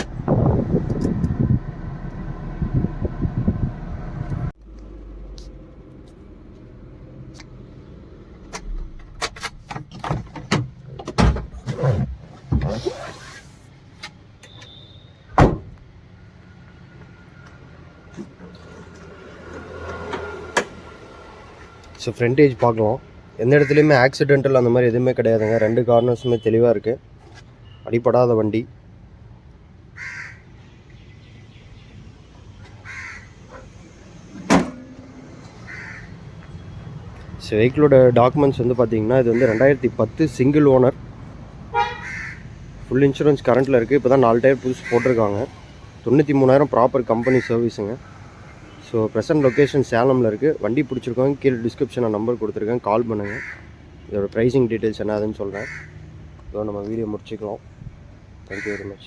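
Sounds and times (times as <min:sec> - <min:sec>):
low background rumble: 0:00.0 - 0:09.2
clicks and knocks inside van: 0:08.4 - 0:13.0, 0:15.4 - 0:15.8
van door shutting: 0:08.5 - 0:13.2, 0:15.3 - 0:15.8, 0:33.4 - 0:35.7
crow cawing: 0:30.0 - 0:30.5, 0:32.8 - 0:33.4, 0:35.6 - 0:36.2, 0:39.3 - 0:39.7, 0:41.9 - 0:42.4, 0:53.2 - 0:53.7, 0:55.6 - 0:56.0, 0:58.6 - 0:59.0.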